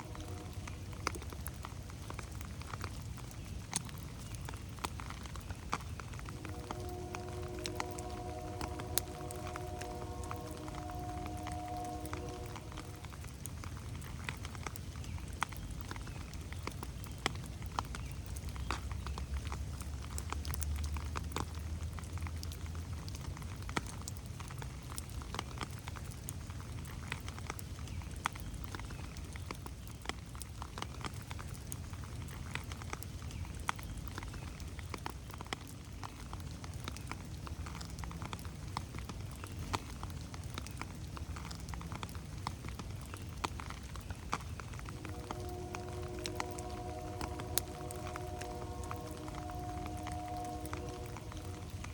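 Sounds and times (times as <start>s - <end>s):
low steady rumble: 0.0s - 2.7s, 5.8s - 14.6s, 44.6s - 51.9s
raindrops tapping on leaves: 0.0s - 51.9s.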